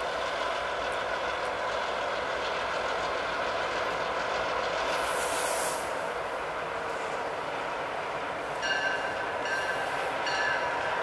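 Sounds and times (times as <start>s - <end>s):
diesel locomotive engine: 0.0s - 11.0s
short high hiss: 4.9s - 6.1s.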